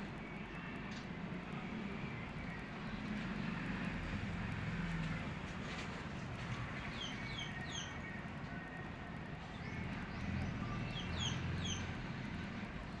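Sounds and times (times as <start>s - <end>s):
outdoor background rumble: 0.0s - 13.0s
bird chirping: 9.6s - 11.9s.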